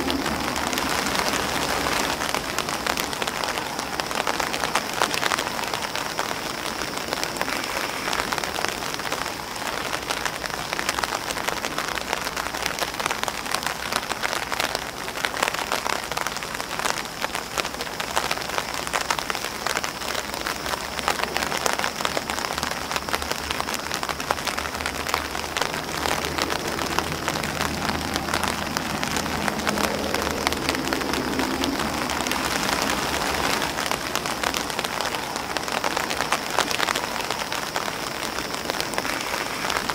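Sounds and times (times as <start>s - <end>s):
rain pattering on umbrella: 0.0s - 39.9s
faint low rumble: 23.9s - 35.2s.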